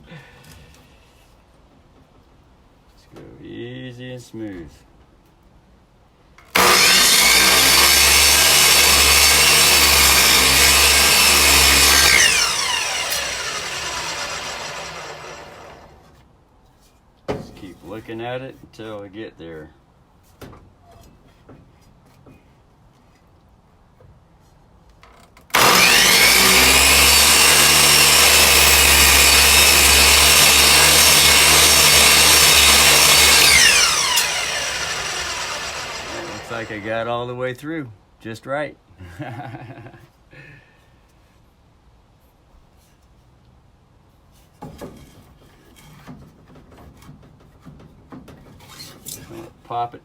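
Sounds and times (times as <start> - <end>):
electric miter saw cutting wood: 6.5 - 16.1, 25.5 - 37.0.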